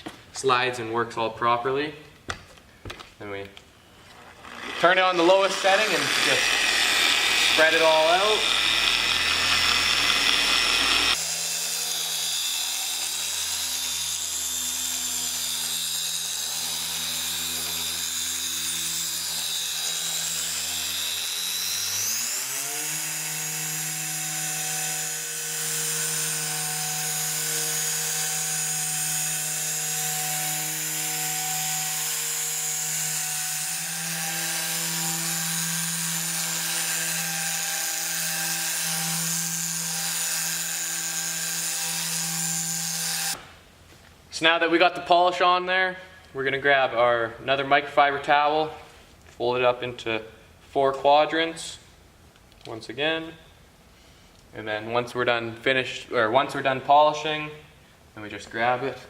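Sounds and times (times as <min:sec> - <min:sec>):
electric polisher running: 0:04.4 - 0:43.4.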